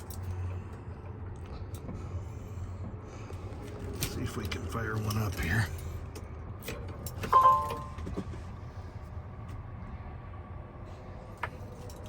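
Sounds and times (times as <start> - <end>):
electronic dashboard chime: 7.3 - 8.0.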